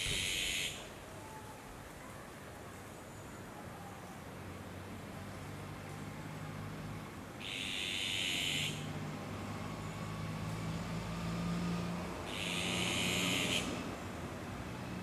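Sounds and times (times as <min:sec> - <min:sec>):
bird calling harshly: 0:07.4 - 0:08.8, 0:12.3 - 0:13.7.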